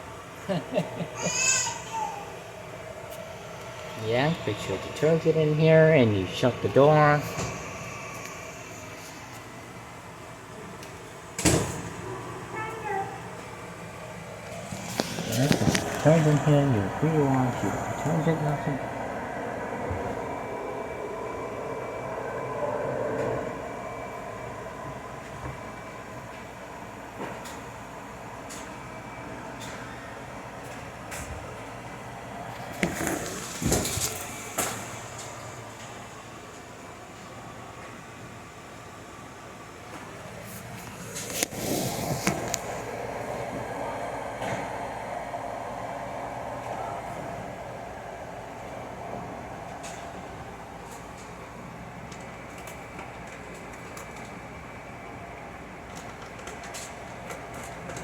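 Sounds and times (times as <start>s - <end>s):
faint steady whine: 0.0s - 58.0s
washing machine running: 0.0s - 58.0s.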